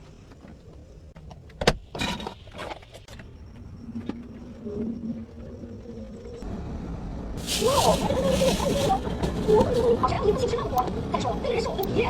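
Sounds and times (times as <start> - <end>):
short rustle: 7.4 - 10.1.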